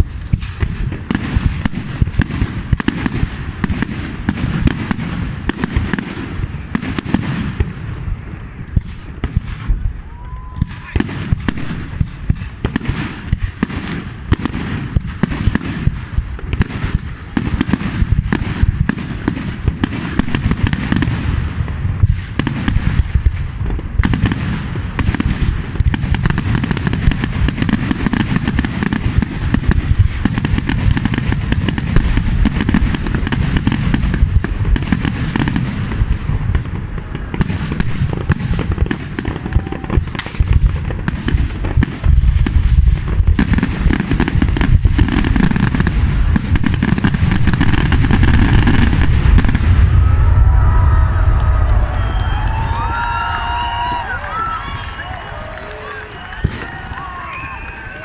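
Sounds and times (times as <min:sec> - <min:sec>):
fireworks bangs and crackling: 0:00.0 - 0:58.0
low rumble: 0:47.2 - 0:54.3.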